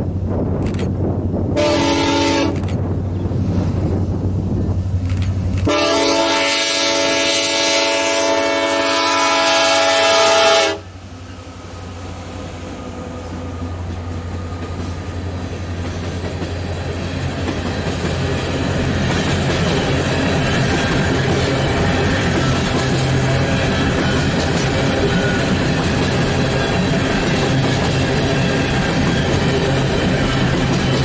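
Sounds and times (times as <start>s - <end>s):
freight cars rumbling on rails: 0.0s - 31.0s
locomotive air horn chord: 1.6s - 2.6s, 5.6s - 11.0s.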